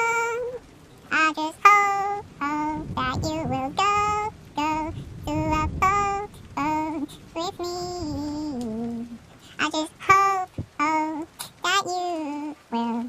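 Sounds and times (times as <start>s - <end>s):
high voice singing unaccompanied: 0.0s - 13.0s
singer breathing: 4.9s - 5.2s, 9.3s - 9.6s.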